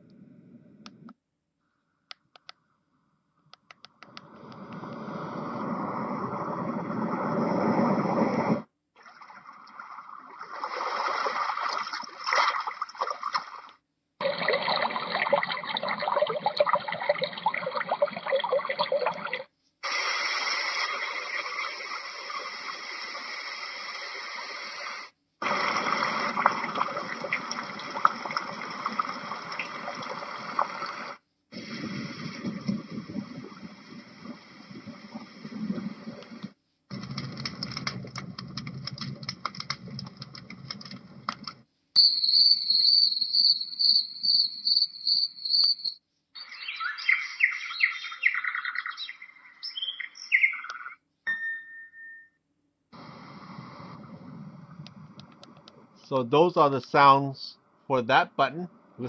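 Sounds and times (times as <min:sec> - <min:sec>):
faint clicks: 0:03.5 - 0:05.0
water-like white noise: 0:14.2 - 0:41.6.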